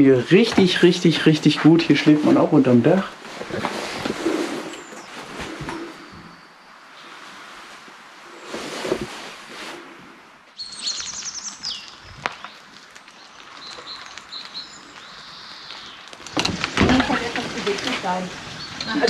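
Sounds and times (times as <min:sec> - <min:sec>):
songbird trilling and chirping: 0:10.6 - 0:16.1, 0:18.5 - 0:19.0.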